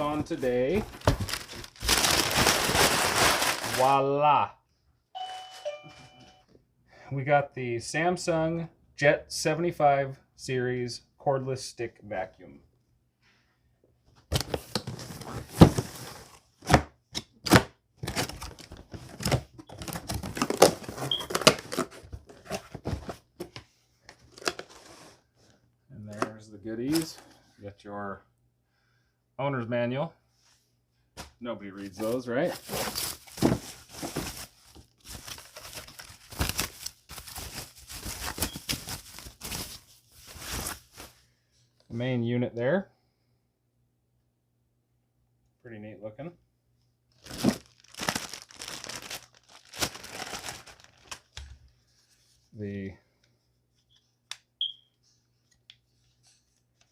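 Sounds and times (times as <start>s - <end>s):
cardboard scraping and rustling: 0.0s - 3.8s, 18.0s - 23.6s, 32.0s - 36.7s.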